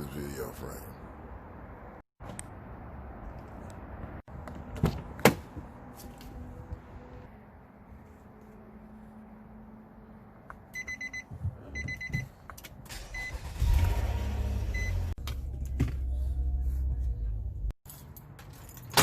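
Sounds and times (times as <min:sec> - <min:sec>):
vehicle warning chime beeps: 0:10.7 - 0:12.4, 0:13.0 - 0:13.6, 0:14.7 - 0:15.0.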